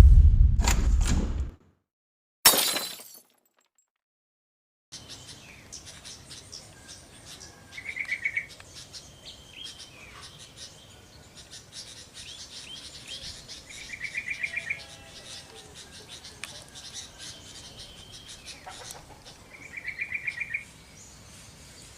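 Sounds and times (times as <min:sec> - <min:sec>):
small birds chirping: 0:05.0 - 0:21.9.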